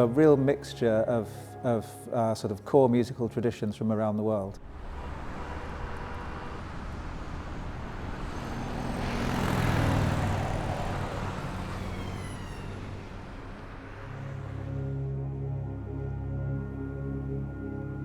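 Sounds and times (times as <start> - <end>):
vehicle passing by: 4.6 - 16.4
road traffic noise: 4.6 - 17.4.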